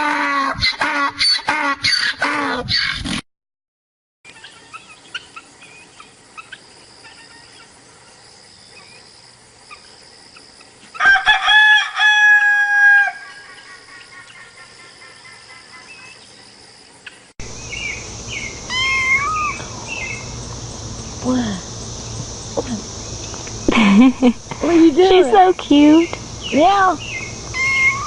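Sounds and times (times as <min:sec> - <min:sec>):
faint chirping of small birds: 0:04.3 - 0:10.9, 0:13.4 - 0:28.0
rooster crowing: 0:11.0 - 0:13.6, 0:18.6 - 0:20.2.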